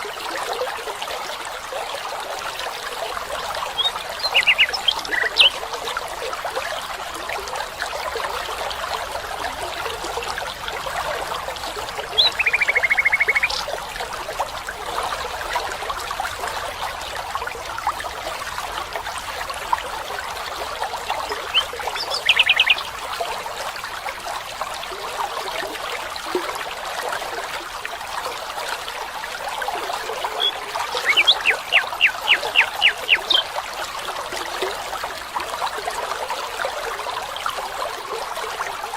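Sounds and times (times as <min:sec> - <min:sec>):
stream trickling: 0:00.0 - 0:38.9
chirps: 0:03.8 - 0:05.6, 0:12.2 - 0:13.7, 0:30.4 - 0:33.5.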